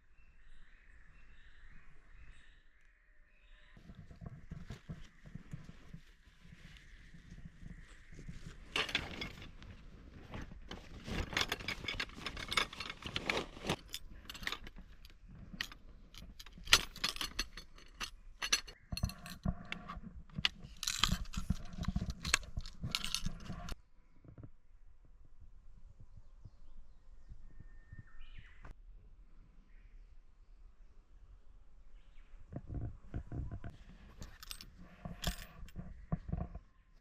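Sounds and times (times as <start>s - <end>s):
rustling and scraping: 3.8s - 24.5s, 32.5s - 36.7s
metal camping gear clinking: 7.3s - 23.8s, 34.0s - 36.5s.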